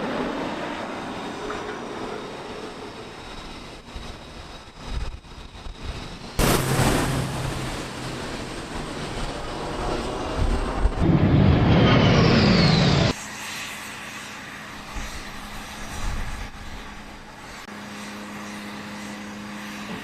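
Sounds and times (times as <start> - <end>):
jet aircraft passing: 0.0 - 20.0
steady hum: 6.4 - 9.5.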